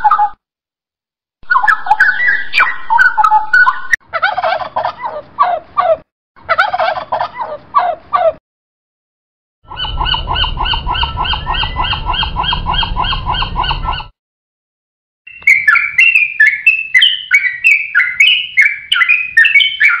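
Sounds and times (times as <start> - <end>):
fledgling songbird chirping: 1.4 - 5.9, 9.7 - 14.1, 15.3 - 20.0
gull calling: 1.4 - 8.4, 9.7 - 14.2
low rumble: 9.7 - 14.1.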